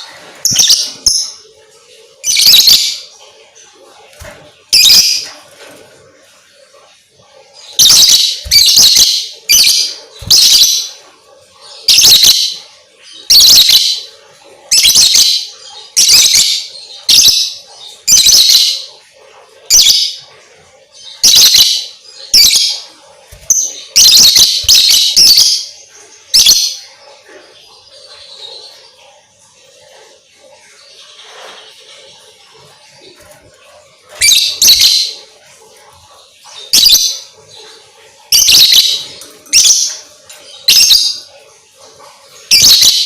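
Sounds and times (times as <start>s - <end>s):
lovebird shrill chirps: 7.8s - 10.9s, 23.5s - 25.7s.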